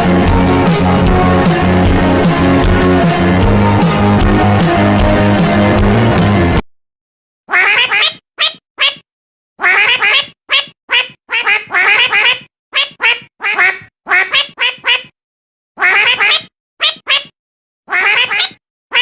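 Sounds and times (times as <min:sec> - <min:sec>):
cat meowing harshly: 0:07.5 - 0:09.0, 0:09.6 - 0:15.1, 0:15.8 - 0:17.3, 0:17.9 - 0:19.0.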